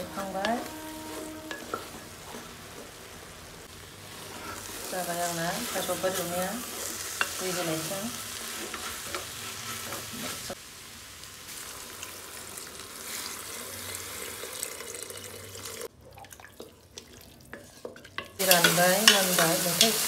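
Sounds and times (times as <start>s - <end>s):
wooden spatula scraping and stirring: 0.0s - 10.6s, 16.6s - 20.0s
flowers sizzling in hot oil: 0.0s - 15.9s, 17.5s - 20.0s
water pouring: 11.8s - 17.5s.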